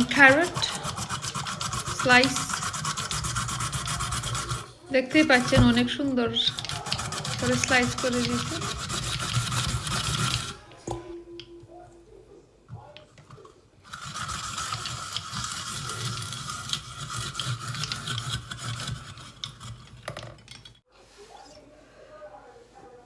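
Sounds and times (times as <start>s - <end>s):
vegetable slicer rasping: 0.0s - 10.8s, 13.8s - 20.6s.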